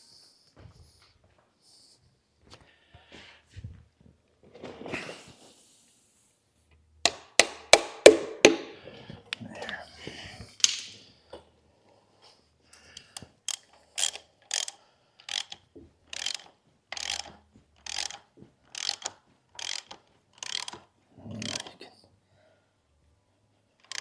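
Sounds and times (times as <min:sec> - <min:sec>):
ratchet wrench clicking: 0:13.5 - 0:21.7, 0:23.8 - 0:24.0.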